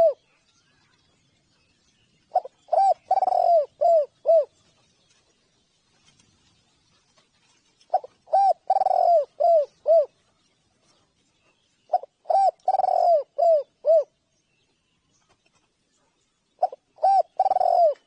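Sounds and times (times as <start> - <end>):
dove cooing: 0.0 - 0.3, 2.3 - 4.6, 7.9 - 10.2, 11.9 - 14.2, 16.6 - 18.0.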